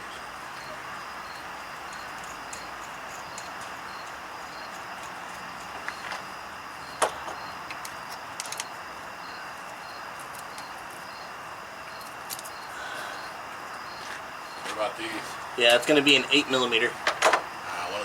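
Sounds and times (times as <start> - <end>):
background hiss: 0.0 - 18.0.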